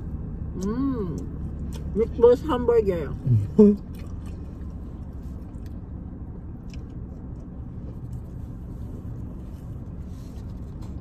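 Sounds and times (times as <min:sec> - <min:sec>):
car cabin rumble: 0:00.0 - 0:11.0
faint chewing: 0:03.8 - 0:05.9, 0:06.5 - 0:11.0.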